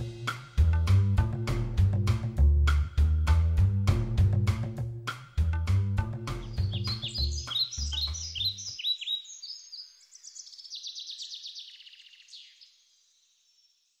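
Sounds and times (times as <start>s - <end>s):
background music with deep bass: 0.0s - 8.2s
birds chirping: 6.2s - 13.8s.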